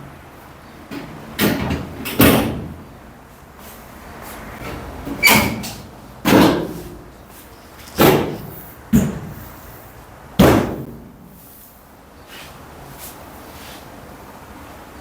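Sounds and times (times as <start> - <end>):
sheet metal cover banging: 4.6 - 7.0, 8.0 - 9.4, 10.4 - 11.1.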